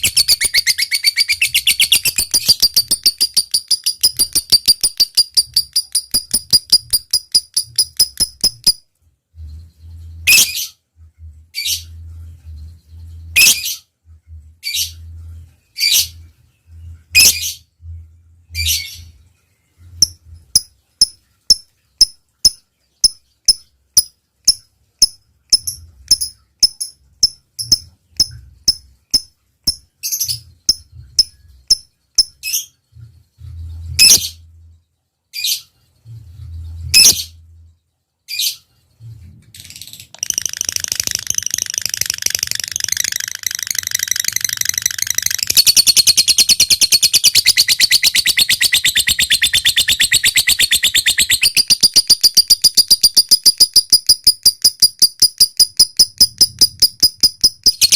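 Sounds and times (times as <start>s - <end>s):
lovebird chattering trill: 0.0s - 8.8s, 40.2s - 57.9s
lovebird chirping: 0.0s - 10.8s, 11.5s - 13.9s, 14.6s - 57.9s.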